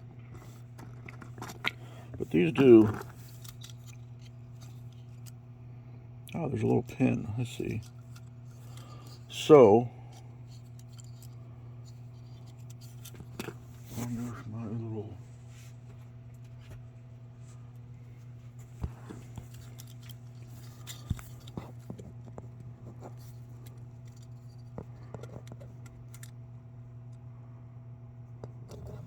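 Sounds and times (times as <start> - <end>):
steady low hum: 0.0 - 29.0
light clicks of small parts: 23.1 - 26.4.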